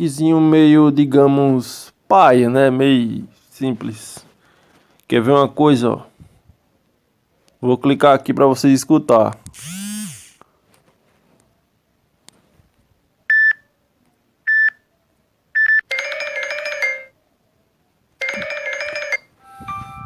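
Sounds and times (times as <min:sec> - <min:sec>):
multi-note chimes: 0:19.4 - 0:20.0.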